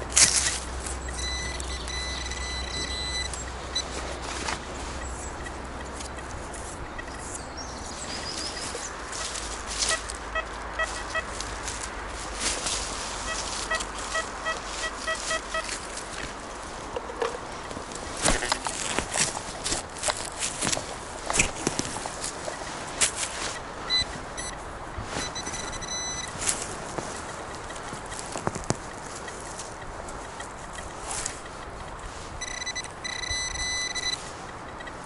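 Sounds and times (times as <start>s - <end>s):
footsteps in leaf litter: 0.0s - 1.1s, 3.4s - 5.7s, 6.4s - 16.9s, 17.8s - 25.5s
metal detector beeps: 0.0s - 7.4s, 8.4s - 11.4s, 13.2s - 15.8s, 23.4s - 26.4s, 30.2s - 35.0s
metal detector tone: 0.0s - 7.4s, 8.5s - 11.4s, 13.2s - 15.8s, 23.4s - 27.8s, 32.4s - 35.0s
distant road traffic: 0.0s - 35.0s
wind: 0.0s - 35.0s.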